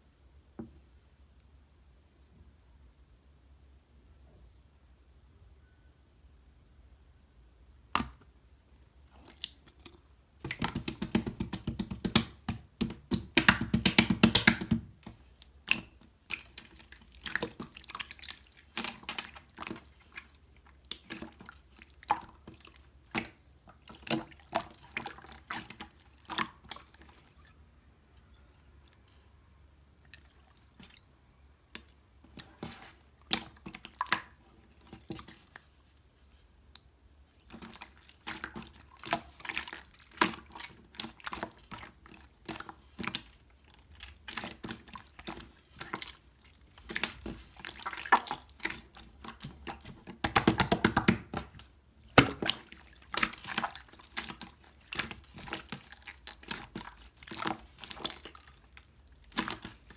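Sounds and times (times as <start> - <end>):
slime squelching and popping: 9.1 - 27.5, 30.1 - 35.7, 36.7 - 59.9
slime crackling pops: 10.4 - 14.9, 48.1 - 53.6.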